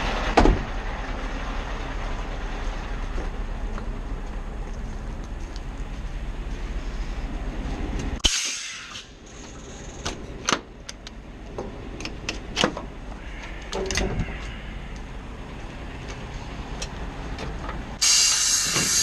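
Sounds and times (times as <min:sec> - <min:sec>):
truck engine rumbling: 0:00.0 - 0:19.0
compressed air hiss: 0:08.2 - 0:09.1, 0:18.0 - 0:19.0.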